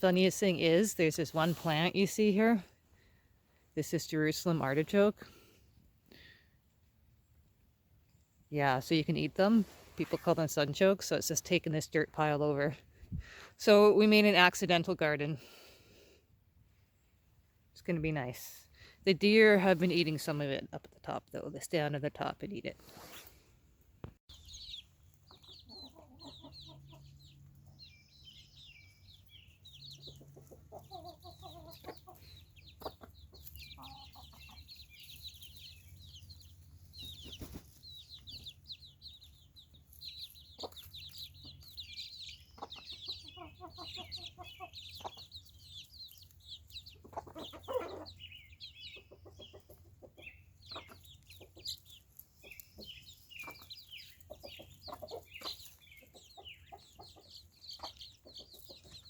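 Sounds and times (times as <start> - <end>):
chickens clucking: 0.0 - 15.4, 24.1 - 59.0
high-pitched bird chirping: 24.3 - 59.0.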